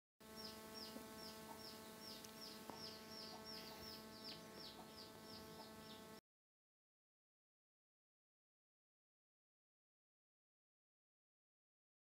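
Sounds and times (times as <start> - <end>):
faint steady hum: 0.2 - 6.2.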